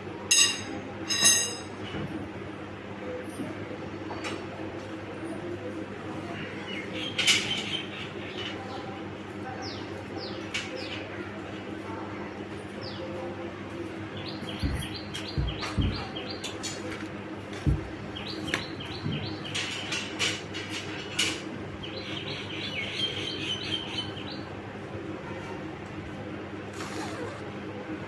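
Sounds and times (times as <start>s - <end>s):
steady low hum: 0.0s - 28.0s
dull low thumps: 14.6s - 16.2s.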